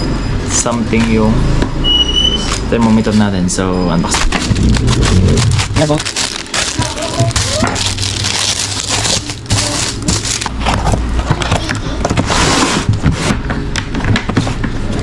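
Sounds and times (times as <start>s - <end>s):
plastic and cardboard rustling: 4.0s - 15.0s.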